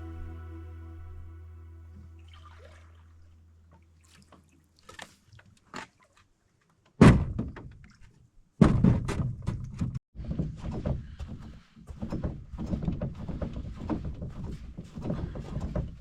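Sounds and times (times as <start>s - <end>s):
background guitar music: 0.0s - 2.7s.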